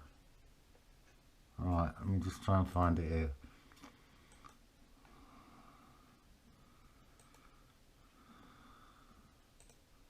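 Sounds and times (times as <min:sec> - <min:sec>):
faint computer mouse clicks: 0:03.7 - 0:04.6, 0:07.1 - 0:07.6, 0:09.6 - 0:09.9.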